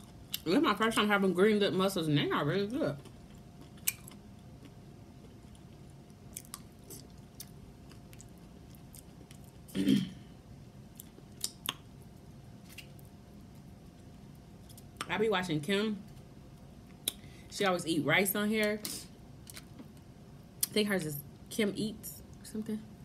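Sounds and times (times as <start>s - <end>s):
person chewing wetly: 3.0s - 9.7s, 10.9s - 11.8s.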